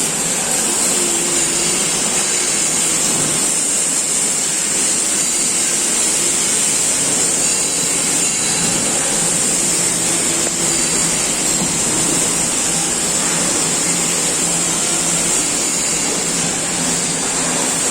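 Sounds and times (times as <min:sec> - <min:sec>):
low machine hum: 0:07.9 - 0:17.9.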